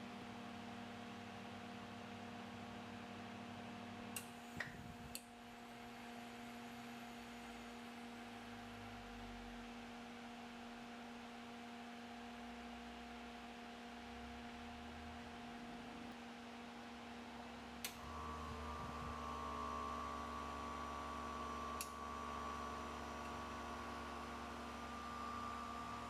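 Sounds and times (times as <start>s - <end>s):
electrical hum: 4.1s - 8.8s, 17.7s - 26.0s.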